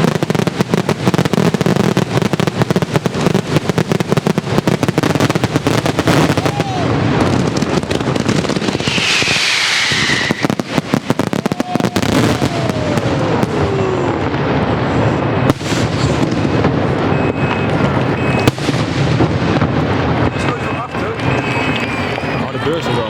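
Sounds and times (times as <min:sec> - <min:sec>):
fireworks bursts and crackling bangs: 0:00.0 - 0:23.0
falling firework whistle: 0:05.0 - 0:19.0, 0:20.1 - 0:23.0.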